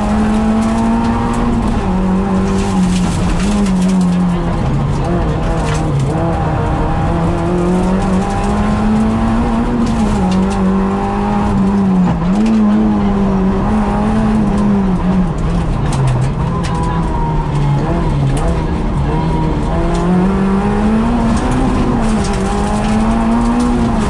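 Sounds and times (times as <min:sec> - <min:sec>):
rally car engine at high revs: 0:00.0 - 0:24.0.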